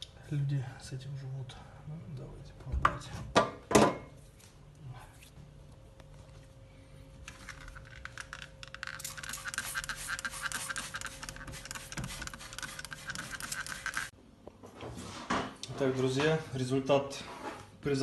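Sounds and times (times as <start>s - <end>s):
toothbrush scrubbing plastic: 7.3s - 14.1s.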